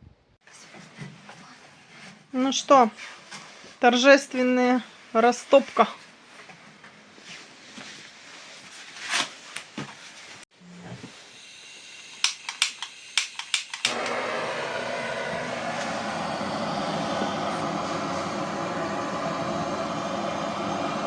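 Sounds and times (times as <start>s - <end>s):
sharp clicks: 12.2s - 14.2s
fire rushing hiss: 13.8s - 21.0s.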